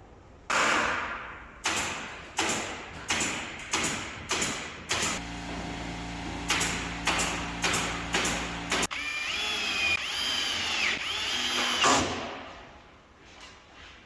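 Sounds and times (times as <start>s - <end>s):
nail gun firing: 0.5s - 5.6s, 6.2s - 8.9s
machine humming: 5.2s - 8.9s.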